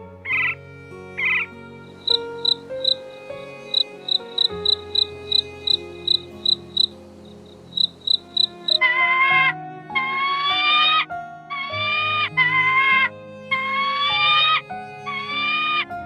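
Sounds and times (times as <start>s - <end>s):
soft background music: 0.0s - 16.0s
high-pitched chirps: 1.2s - 9.0s.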